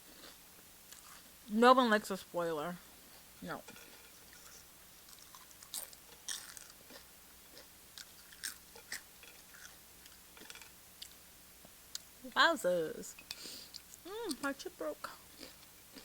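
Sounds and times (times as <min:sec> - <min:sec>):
chewing crunchy chips: 0:00.1 - 0:01.3, 0:04.3 - 0:11.2, 0:15.1 - 0:16.0.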